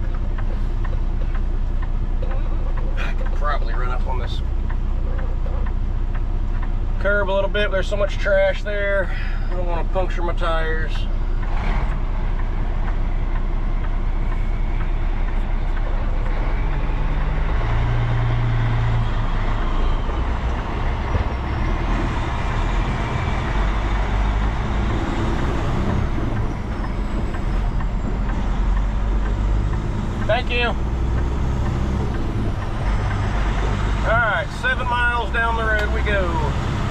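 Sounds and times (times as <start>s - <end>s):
diesel truck engine droning: 0.0s - 36.9s.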